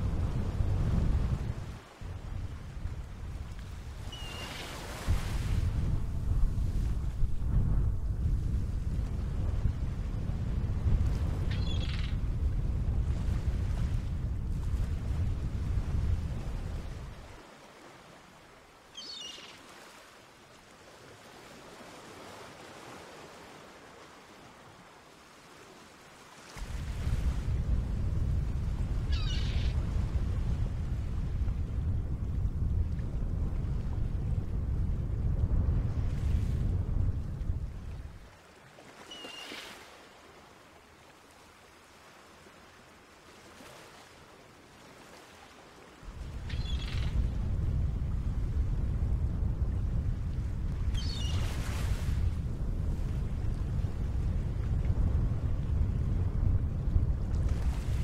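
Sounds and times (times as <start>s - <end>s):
water ambience: 0.0s - 58.0s
warbling bird call: 19.0s - 19.6s, 29.1s - 29.8s, 39.1s - 39.6s, 51.0s - 51.4s.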